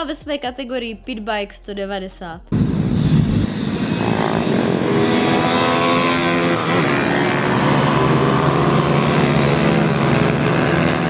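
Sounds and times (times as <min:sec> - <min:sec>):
motorbike engine running: 0:04.1 - 0:11.0.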